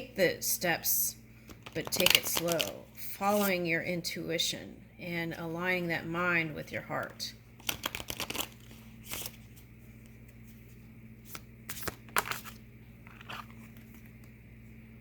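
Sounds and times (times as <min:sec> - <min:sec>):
low electrical hum: 0:00.0 - 0:15.0
cards slapping and rustling: 0:01.4 - 0:02.7, 0:07.6 - 0:14.4.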